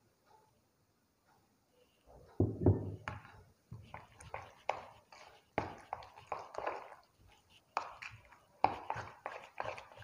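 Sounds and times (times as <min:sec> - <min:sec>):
batter being stirred: 0:02.9 - 0:10.0.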